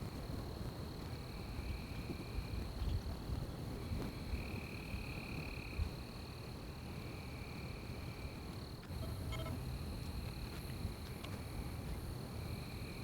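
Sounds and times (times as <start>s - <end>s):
high-pitched insect trill: 7.0s - 11.7s.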